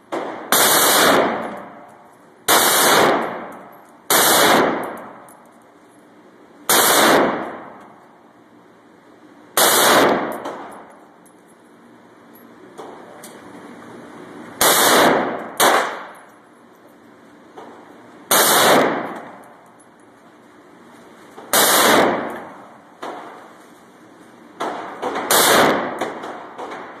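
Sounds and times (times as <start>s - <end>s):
rifle gunshots with echo: 0.1s - 1.9s, 2.5s - 5.3s, 6.7s - 8.0s, 9.6s - 10.9s, 14.6s - 16.2s, 18.3s - 19.4s, 21.5s - 23.3s, 24.6s - 27.0s
fainter single gunshots: 4.1s - 4.9s, 6.7s - 7.6s, 9.6s - 10.7s, 14.6s - 16.1s, 18.3s - 19.2s, 21.5s - 22.4s, 24.8s - 26.9s.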